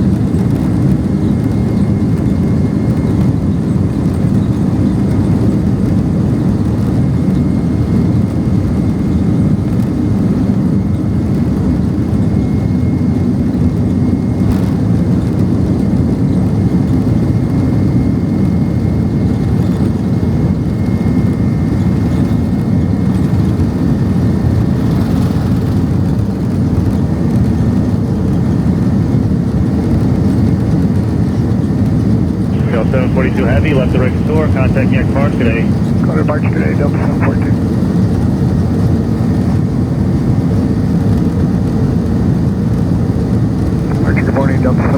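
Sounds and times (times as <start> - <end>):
jet engine noise in cabin: 0.0 - 44.9.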